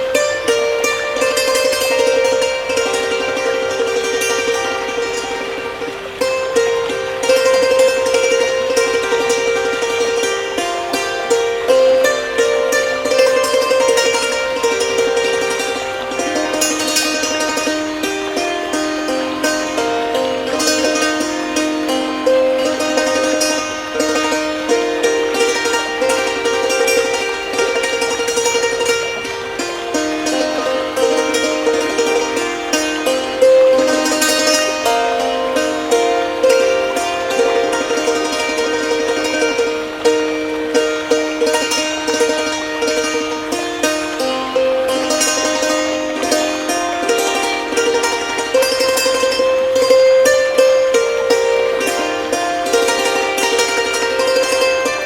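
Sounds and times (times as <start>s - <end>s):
hammered dulcimer melody: 0.0s - 55.0s.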